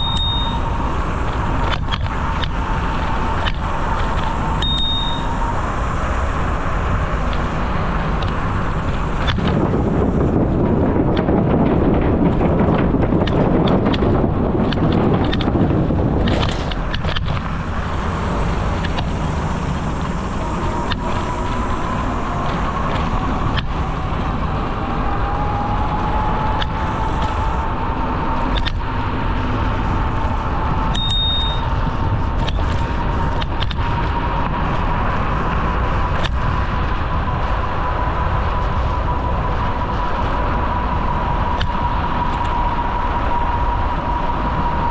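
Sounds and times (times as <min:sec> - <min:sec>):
brief high ping: 0:00.0 - 0:00.8, 0:04.6 - 0:05.4, 0:31.0 - 0:31.7
thin rising whine: 0:00.0 - 0:11.5, 0:17.4 - 0:44.9
bicycle tyres rolling on pavement: 0:00.0 - 0:44.9
wind on microphone: 0:00.0 - 0:44.9.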